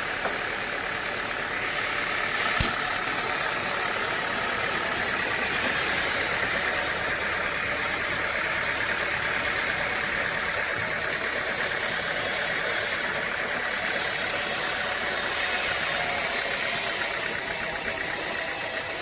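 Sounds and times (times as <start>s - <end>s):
sawmill machinery droning: 0.0s - 19.0s
sharp knock: 2.5s - 2.8s.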